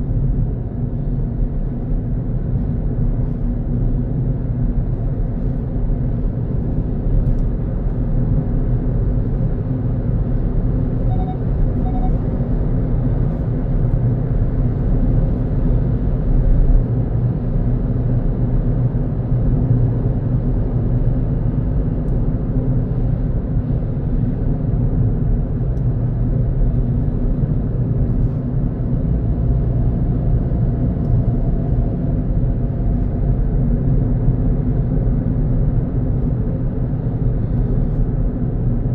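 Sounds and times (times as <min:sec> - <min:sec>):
car driving on a road: 0:00.0 - 0:38.9
short faint beeps: 0:11.0 - 0:12.2.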